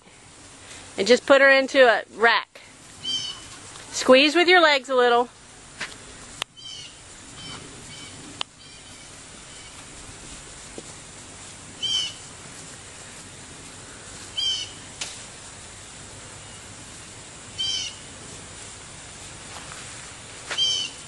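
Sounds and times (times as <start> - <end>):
outdoor background hiss: 0.0 - 21.0
songbird calling: 3.0 - 3.7, 6.5 - 10.0, 11.8 - 12.3, 13.8 - 15.0, 15.7 - 16.8, 17.5 - 18.1, 20.5 - 21.0.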